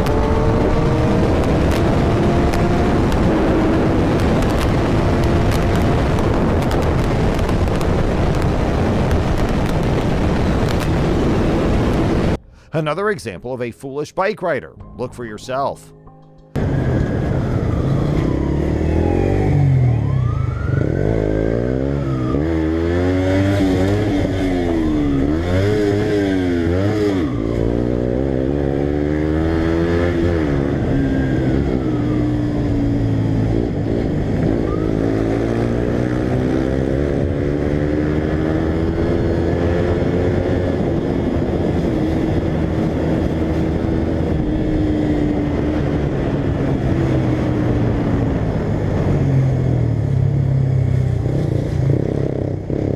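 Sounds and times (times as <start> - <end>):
motorcycle engine revving: 0.0 - 12.4, 16.6 - 52.9.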